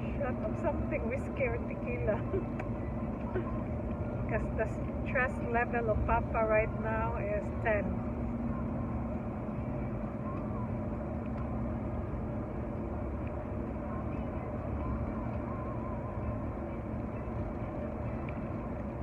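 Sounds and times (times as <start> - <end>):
car engine hum: 0.0 - 19.0
tyres rolling on snowy road: 0.0 - 19.0.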